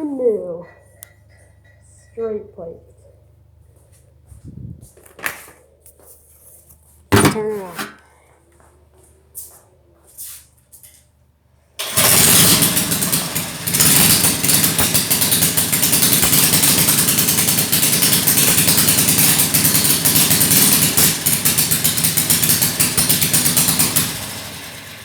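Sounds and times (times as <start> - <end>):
loud straight-piped engine: 11.8 - 25.0.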